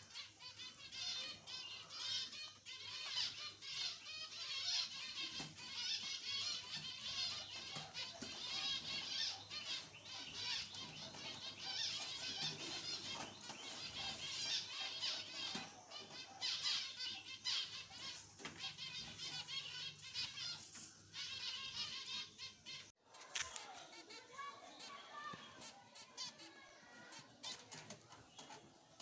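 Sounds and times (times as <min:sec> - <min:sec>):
finches chirping: 0:00.0 - 0:22.9.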